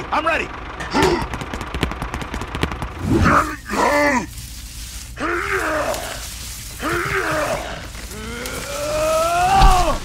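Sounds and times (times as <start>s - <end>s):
rapid clicking: 0.8s - 3.5s
man groaning with effort: 5.2s - 10.0s.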